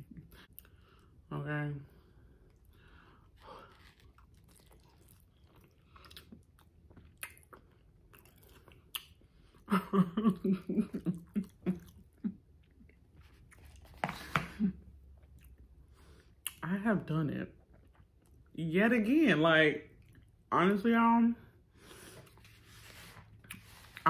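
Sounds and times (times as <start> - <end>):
chewing and biting: 2.5 - 9.4
person laughing: 9.7 - 12.4.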